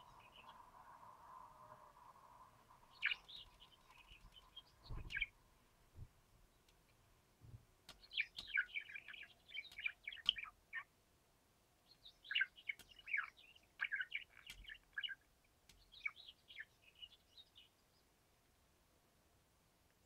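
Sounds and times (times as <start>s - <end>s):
birds chirping: 0.0s - 0.7s, 2.7s - 5.4s, 6.4s - 10.9s, 11.8s - 18.1s
sharp clicks: 7.8s - 10.5s, 12.7s - 13.2s, 14.3s - 16.0s.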